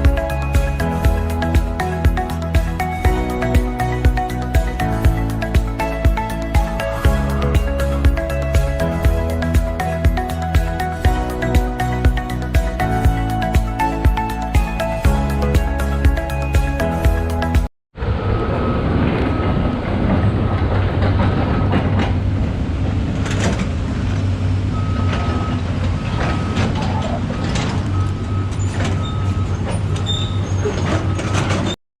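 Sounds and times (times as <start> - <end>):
background music: 0.0 - 17.7
train rumbling on rails: 18.0 - 31.8.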